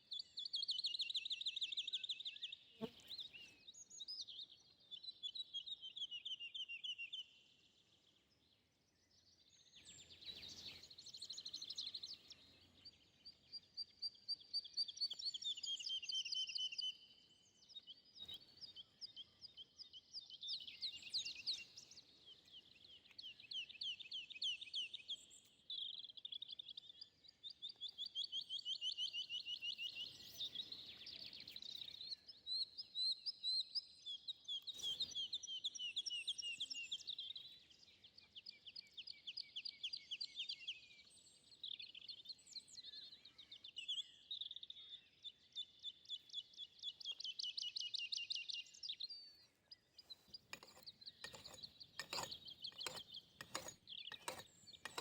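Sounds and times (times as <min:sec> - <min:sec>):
songbirds trilling: 0:46.7 - 0:55.0.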